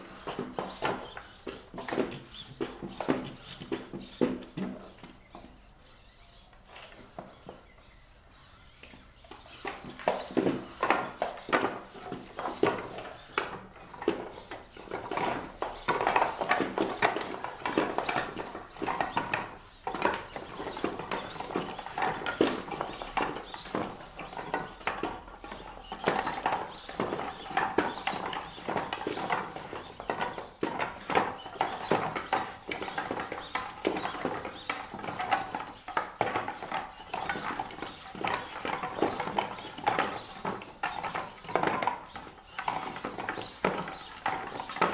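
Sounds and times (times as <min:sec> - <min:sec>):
robot feet tapping on floor: 0:00.0 - 0:44.9
faint servo whine: 0:00.1 - 0:12.2.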